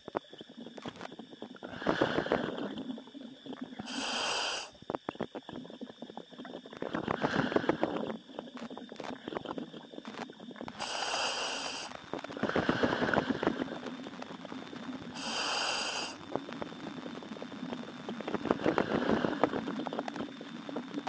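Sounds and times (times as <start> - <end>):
bubbling exhaust in water: 0.0 - 21.0
hissing inhale through demand valve: 1.6 - 2.9, 3.7 - 4.8, 6.9 - 8.1, 10.7 - 13.9, 15.1 - 16.2, 18.4 - 20.0.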